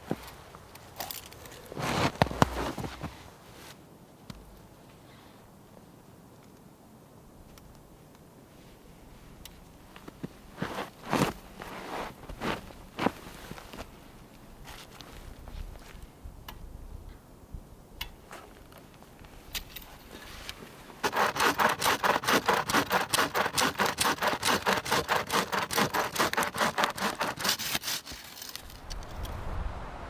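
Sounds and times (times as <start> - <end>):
bow saw cutting wood: 21.0 - 29.0.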